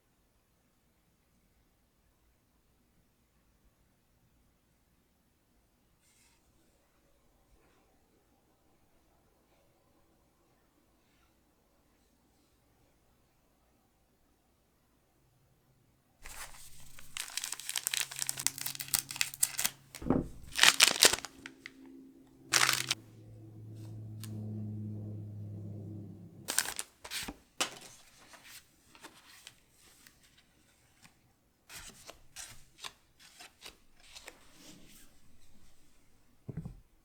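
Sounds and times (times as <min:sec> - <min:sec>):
foil wrapper crinkling and tearing: 0:16.3 - 0:21.7, 0:22.5 - 0:23.0, 0:26.5 - 0:26.9.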